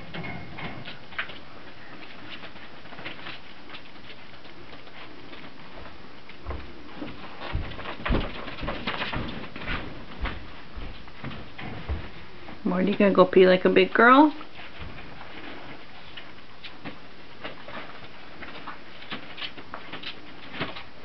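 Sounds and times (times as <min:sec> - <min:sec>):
puppy paws pattering: 0:00.1 - 0:21.0
heavier thumps and knocks: 0:07.4 - 0:12.2.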